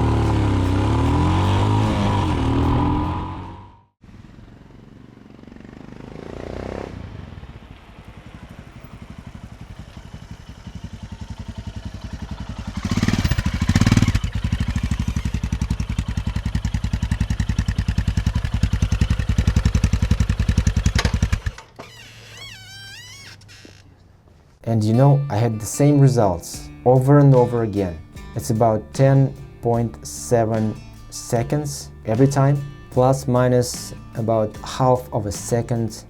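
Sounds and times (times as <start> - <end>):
motorcycle exhaust pulses: 4.6 - 21.8.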